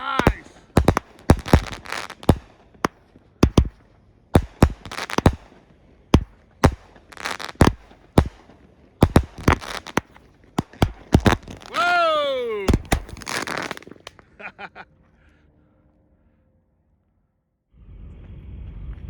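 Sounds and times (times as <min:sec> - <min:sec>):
firework bangs: 0:00.0 - 0:14.2
firework crackles: 0:00.0 - 0:14.2.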